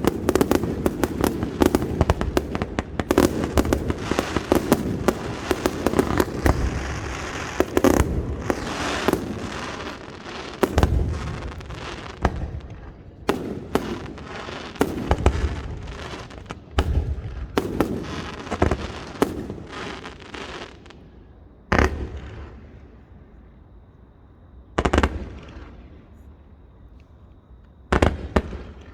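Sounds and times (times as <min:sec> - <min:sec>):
fireworks crackling: 0:00.0 - 0:21.0.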